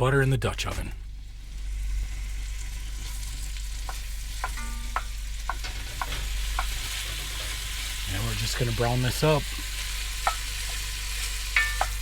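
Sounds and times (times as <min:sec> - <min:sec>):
meat sizzling in a pot: 0:01.1 - 0:12.0
utensil clinking against pot: 0:03.8 - 0:07.9, 0:10.2 - 0:10.9, 0:11.5 - 0:12.0.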